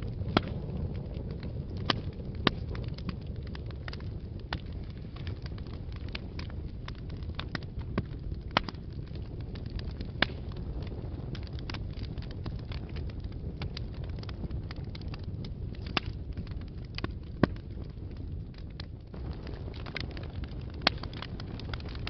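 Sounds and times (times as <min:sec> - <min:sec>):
fire crackling: 0:00.0 - 0:22.0
low rumble of flames: 0:00.0 - 0:22.0
sharp wood pops: 0:00.3 - 0:00.7, 0:01.7 - 0:03.1, 0:03.8 - 0:08.8, 0:09.7 - 0:10.5, 0:15.8 - 0:17.7.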